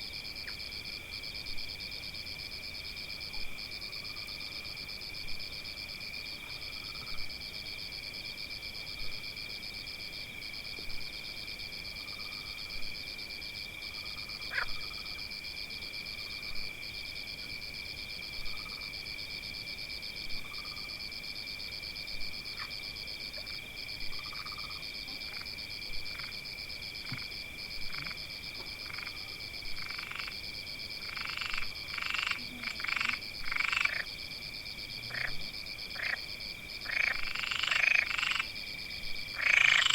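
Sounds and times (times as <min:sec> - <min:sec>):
frog croaking: 0:14.0 - 0:15.3, 0:22.4 - 0:34.2, 0:35.0 - 0:38.6, 0:39.3 - 0:39.9.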